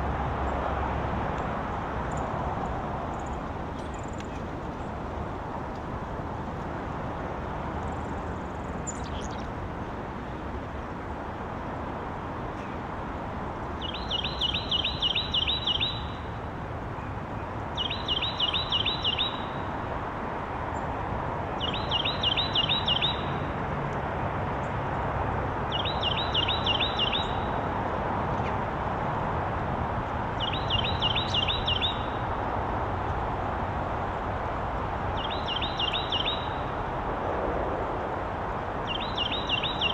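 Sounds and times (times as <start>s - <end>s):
songbird singing: 1.3s - 5.1s, 7.4s - 9.6s, 12.4s - 24.8s, 25.5s - 28.7s, 30.0s - 36.9s, 38.6s - 39.9s.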